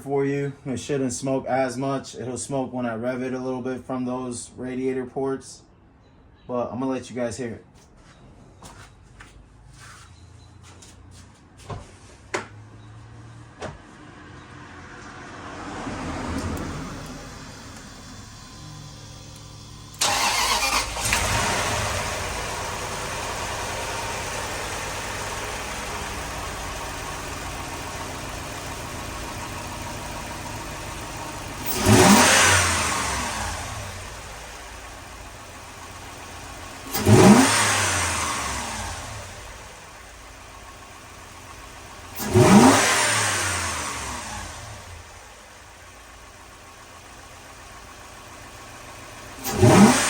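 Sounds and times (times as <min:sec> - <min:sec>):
engine revving: 0:14.1 - 0:50.0
car engine fast idle: 0:16.3 - 0:50.0.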